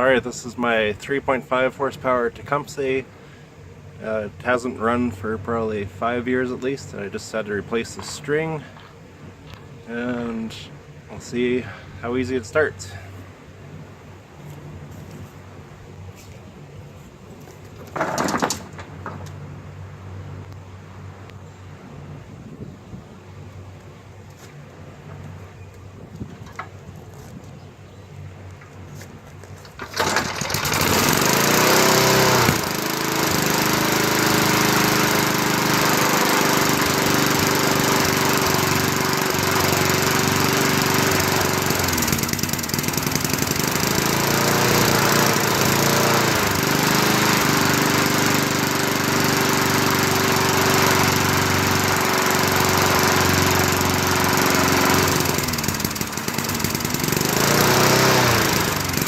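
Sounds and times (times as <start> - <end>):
lawn mower engine running: 17.4 - 19.6, 29.4 - 59.0.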